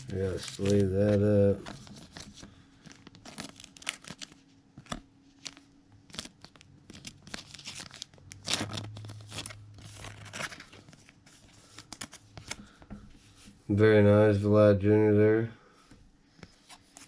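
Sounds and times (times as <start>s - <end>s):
cards shuffled and flicked: 0.0s - 12.8s
plastic sleeves rustling: 0.0s - 13.7s.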